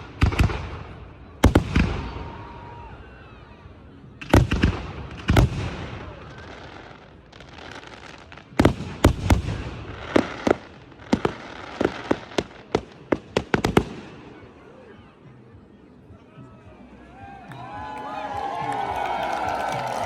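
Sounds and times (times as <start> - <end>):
firework crackle: 4.4 - 14.0.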